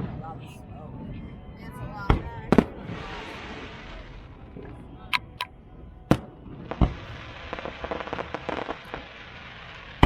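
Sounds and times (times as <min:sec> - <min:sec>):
fireworks crackling pops: 0:05.1 - 0:05.5, 0:06.1 - 0:10.0.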